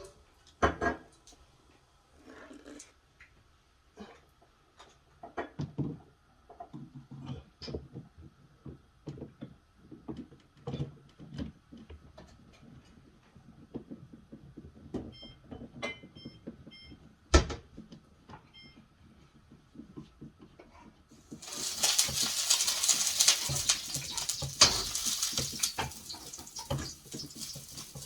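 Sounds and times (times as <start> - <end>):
parts knocking and clattering: 21.4 - 28.0.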